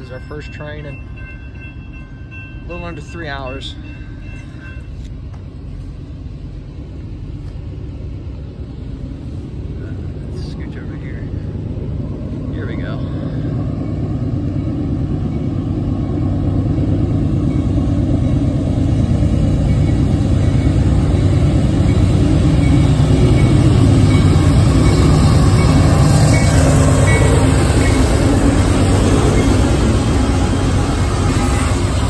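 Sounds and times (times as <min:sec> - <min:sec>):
diesel locomotive engines rumbling: 0:00.0 - 0:32.0.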